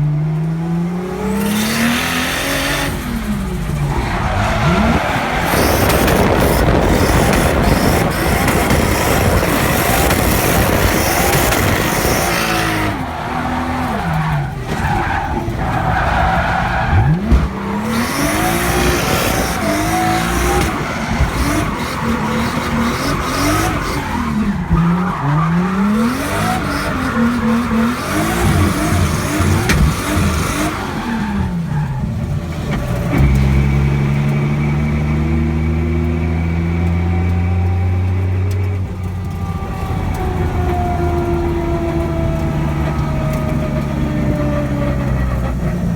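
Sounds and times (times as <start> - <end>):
car engine revving: 0.0 - 45.9
tyres screeching: 1.8 - 32.1.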